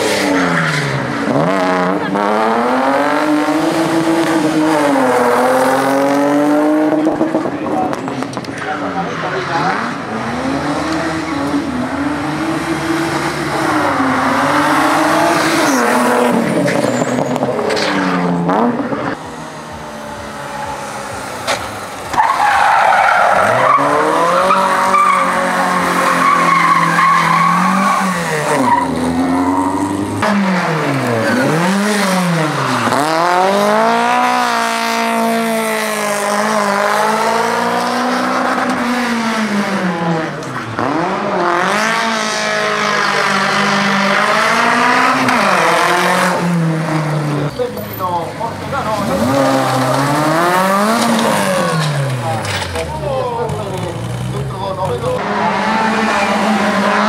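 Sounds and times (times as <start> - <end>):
car engine revving: 0.0 - 57.0
tyres squealing: 22.0 - 30.2.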